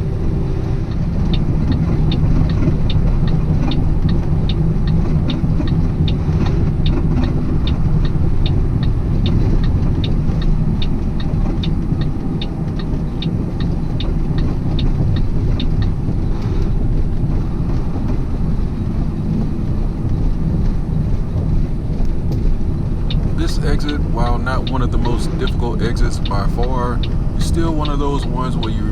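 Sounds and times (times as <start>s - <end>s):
truck driving rumble inside cab: 0.0s - 28.9s.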